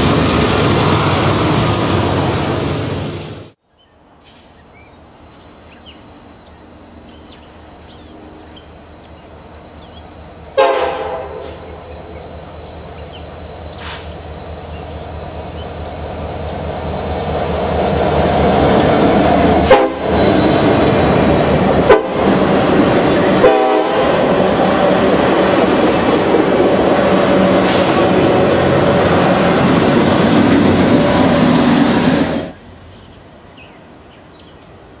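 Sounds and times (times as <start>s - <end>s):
locomotive engines rumbling: 4.3s - 35.0s
train horn blast: 10.6s - 11.8s, 19.6s - 20.4s, 21.8s - 22.5s, 23.3s - 25.2s
train wheels rolling: 11.4s - 32.6s.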